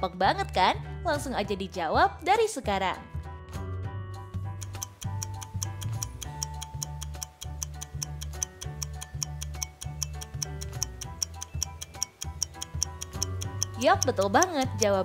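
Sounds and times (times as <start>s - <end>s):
light melodic notes: 4.4s - 15.0s
clock-like ticking: 4.5s - 15.0s.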